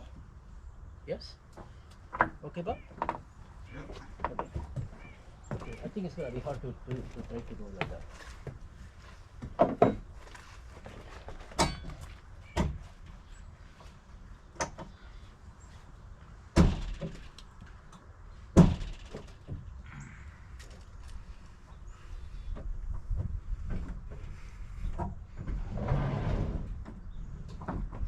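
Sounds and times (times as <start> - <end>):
wooden knocks and thuds: 1.6 - 5.9, 9.4 - 13.0, 16.5 - 17.4, 18.6 - 19.7, 22.5 - 25.7, 26.8 - 28.0.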